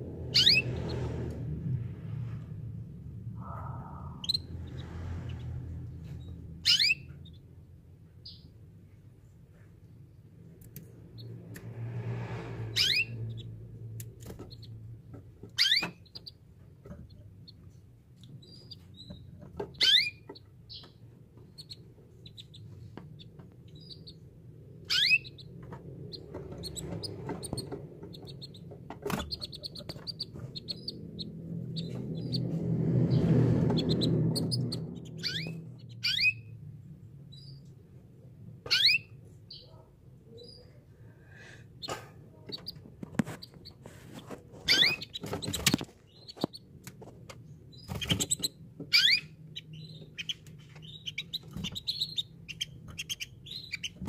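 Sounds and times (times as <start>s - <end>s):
low rumble: 0.0s - 7.8s, 11.0s - 15.0s, 29.5s - 38.4s
canary singing: 0.2s - 1.0s, 3.4s - 4.9s, 6.2s - 7.5s, 12.7s - 13.6s, 14.4s - 16.4s, 17.4s - 36.6s, 37.3s - 37.8s, 38.6s - 40.8s, 44.6s - 46.8s, 47.7s - 54.0s.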